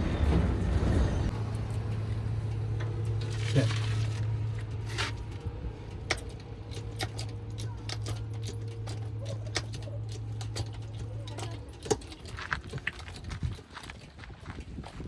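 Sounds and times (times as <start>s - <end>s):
backhoe engine hum: 0.0s - 15.0s
knocks and clanks: 4.6s - 14.7s.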